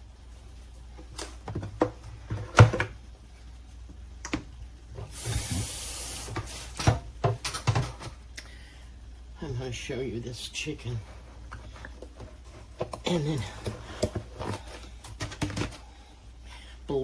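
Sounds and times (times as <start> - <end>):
hiss: 5.1 - 6.8
kitchen knocks and clicks: 6.4 - 8.2, 11.5 - 15.8.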